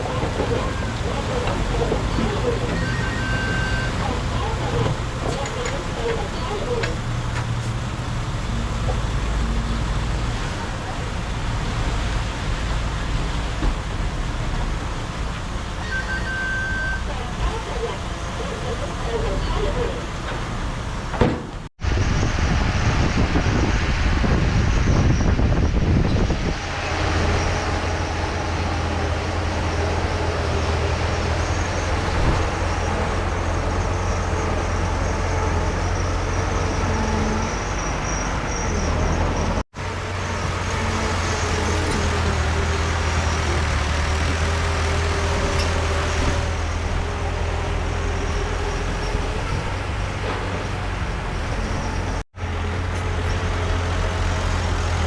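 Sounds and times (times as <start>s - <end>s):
low diesel engine drone: 0.0s - 55.0s.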